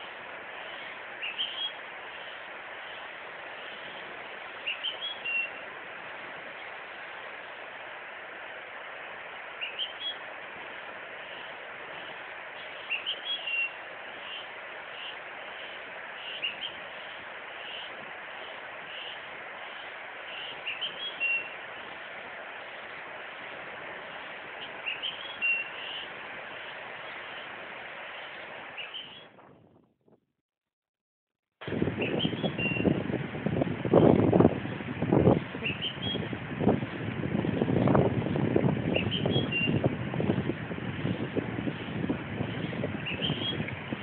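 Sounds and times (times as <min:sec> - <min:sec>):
forest background hiss: 0:00.0 - 0:29.4, 0:31.6 - 0:44.0
birds chirping: 0:00.6 - 0:05.7, 0:09.6 - 0:10.3, 0:11.3 - 0:22.0, 0:24.1 - 0:29.4, 0:32.0 - 0:33.0, 0:35.5 - 0:37.0, 0:38.8 - 0:39.9, 0:41.7 - 0:44.0.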